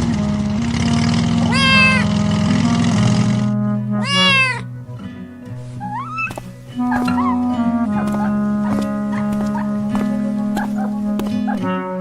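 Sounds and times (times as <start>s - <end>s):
background music: 0.0s - 12.0s
cat meowing: 1.4s - 2.1s, 4.0s - 4.7s, 5.8s - 7.5s.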